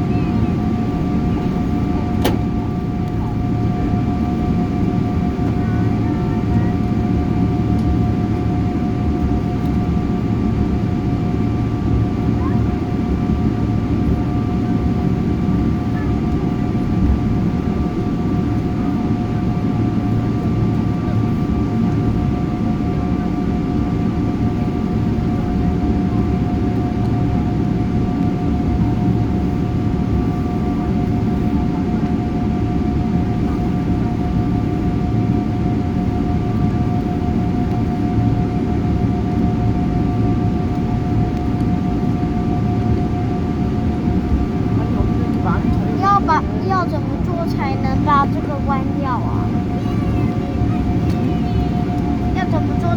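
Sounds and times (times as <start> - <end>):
airliner cabin rumble: 0.0 - 52.9
steady whining tones: 43.0 - 52.9.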